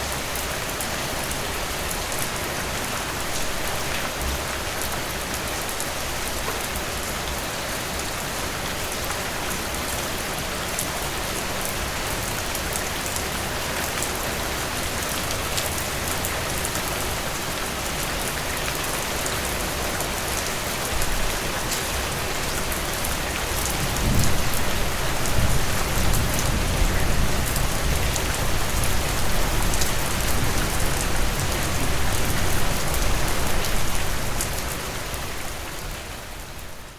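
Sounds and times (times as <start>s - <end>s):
heavy rain pouring: 0.0s - 36.9s
rolling thunder rumble: 23.8s - 32.6s.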